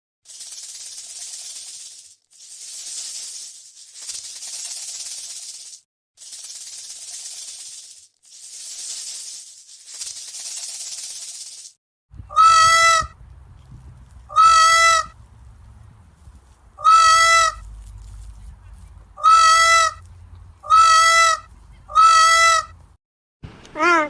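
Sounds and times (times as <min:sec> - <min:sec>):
low background rumble: 0:12.1 - 0:23.0
goose honking: 0:12.2 - 0:13.2, 0:14.2 - 0:15.5, 0:16.8 - 0:22.8.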